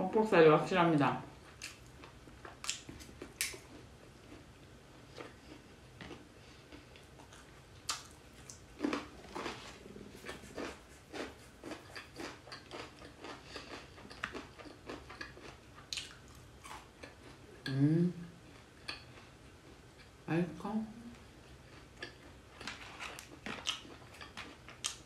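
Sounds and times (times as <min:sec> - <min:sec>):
person chewing chicken: 0:01.5 - 0:17.5, 0:21.5 - 0:25.0.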